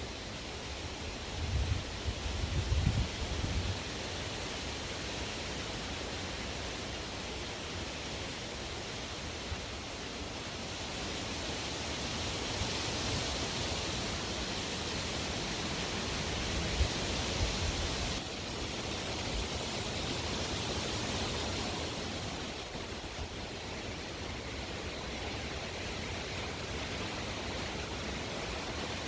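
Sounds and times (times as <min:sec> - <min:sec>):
strong wind blowing: 0:01.4 - 0:03.8.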